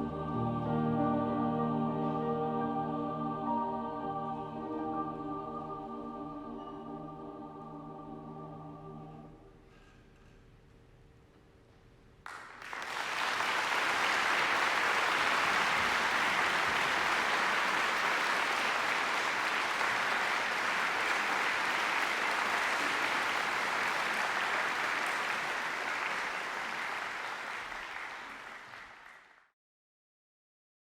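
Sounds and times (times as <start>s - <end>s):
audience applauding: 12.3s - 29.5s.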